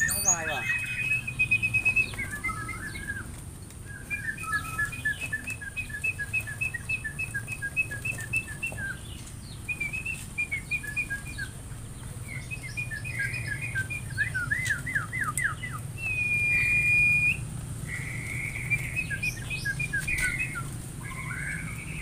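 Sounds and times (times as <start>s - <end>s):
small bird chirping: 0.0s - 3.3s, 3.9s - 22.0s.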